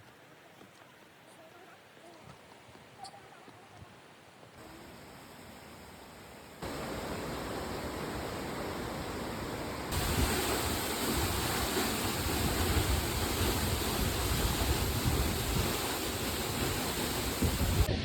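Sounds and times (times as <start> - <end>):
waterfall rushing: 6.4 - 18.0.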